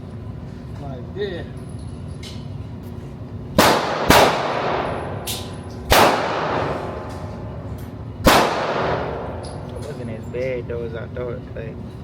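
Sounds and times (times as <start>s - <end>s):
gunshots: 3.6s - 5.2s, 5.9s - 7.0s, 8.2s - 9.3s.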